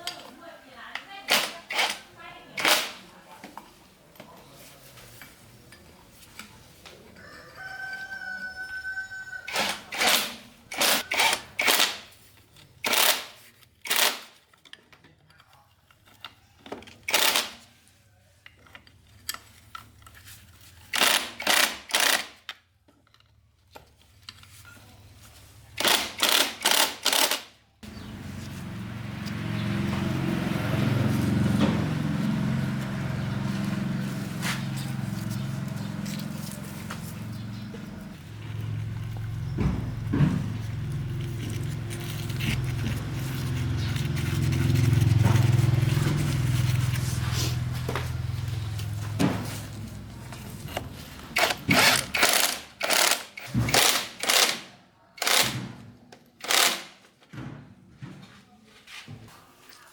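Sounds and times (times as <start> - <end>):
rooster crowing: 7.2 - 10.0
steady low motor: 27.8 - 51.8.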